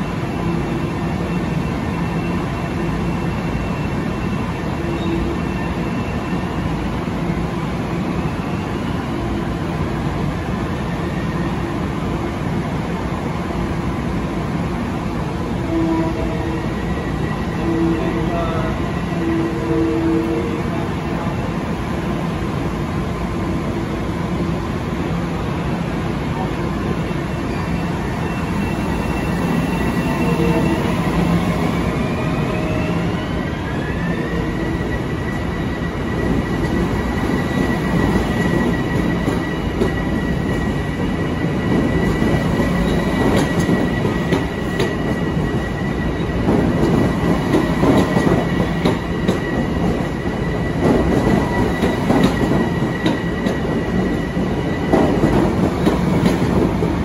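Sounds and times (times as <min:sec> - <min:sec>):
rumble of passing train cars: 0:00.0 - 0:57.0.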